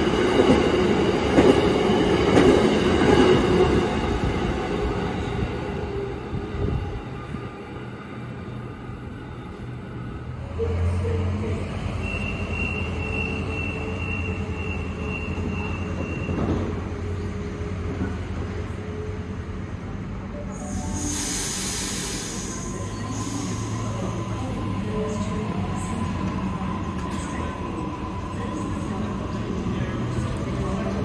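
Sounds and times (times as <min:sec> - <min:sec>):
high wheel squeal: 0:12.0 - 0:16.4.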